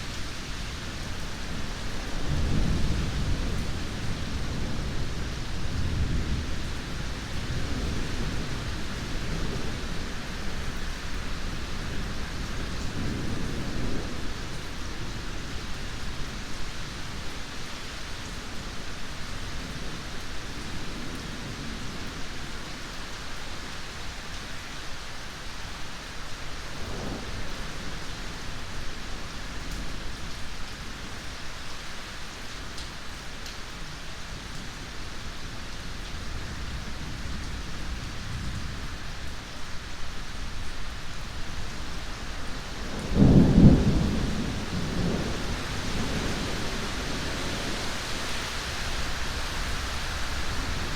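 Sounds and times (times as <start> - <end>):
low rumble of thunder: 0.0 - 24.1, 26.6 - 31.2, 34.0 - 50.9
steady rain falling: 0.0 - 50.9
loud close thunderclap: 42.8 - 48.2.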